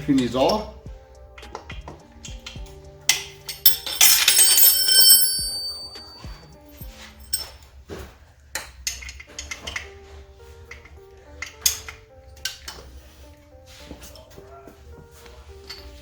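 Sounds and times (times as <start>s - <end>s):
background music: 0.0s - 16.0s
metal tools clinking: 3.5s - 6.3s, 7.2s - 7.5s
ringing metallic clatter: 3.6s - 6.3s.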